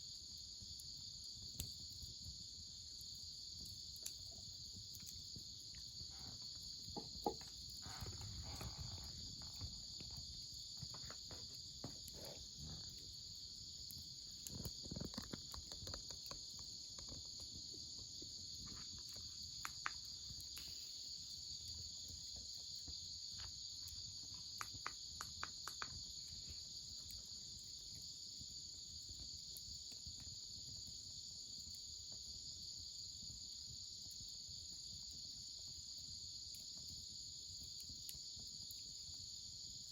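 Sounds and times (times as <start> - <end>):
insects singing: 5.9 - 21.4.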